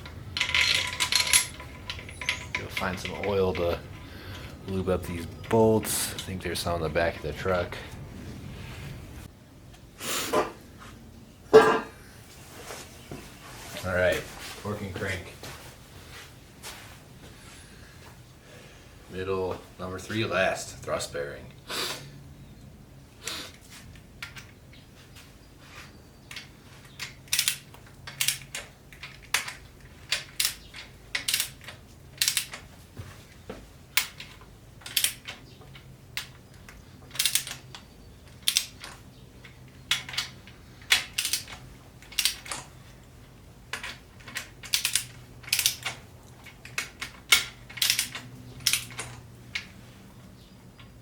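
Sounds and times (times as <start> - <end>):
wrench ratcheting clicks: 27.0 - 32.6, 34.0 - 35.4, 37.1 - 37.6, 38.4 - 38.9, 39.9 - 42.6, 43.7 - 49.2.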